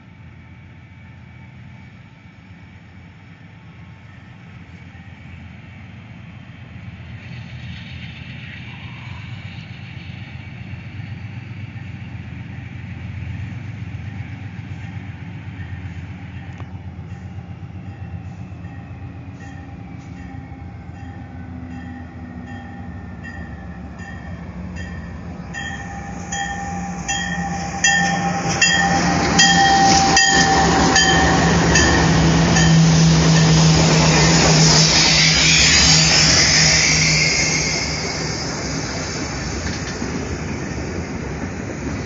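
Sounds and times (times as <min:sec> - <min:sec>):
diesel locomotives passing: 0:00.0 - 0:42.0
bell ringing: 0:25.6 - 0:33.6.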